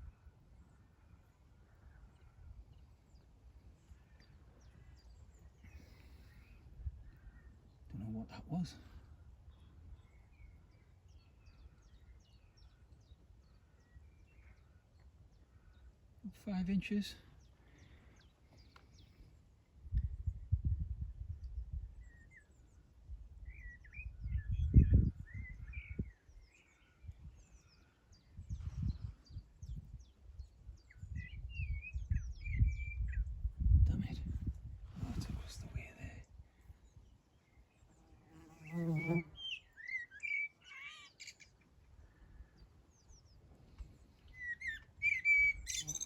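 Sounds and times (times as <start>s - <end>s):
small birds chirping: 0.0s - 46.0s
low rumble on microphone: 19.9s - 22.0s, 28.4s - 36.3s
birds whistling and chirping: 30.8s - 33.3s, 38.7s - 41.5s, 44.2s - 46.0s.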